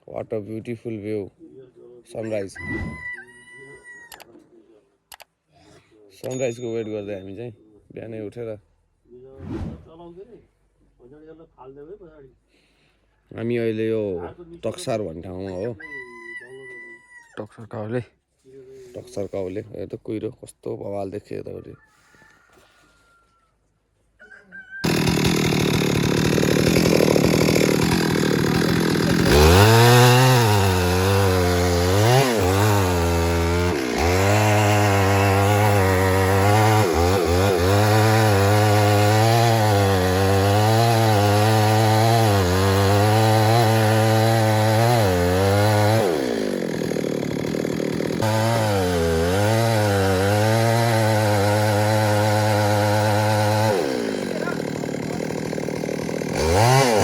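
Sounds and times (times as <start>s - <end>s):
chainsaw revving and cutting wood: 24.8s - 57.0s.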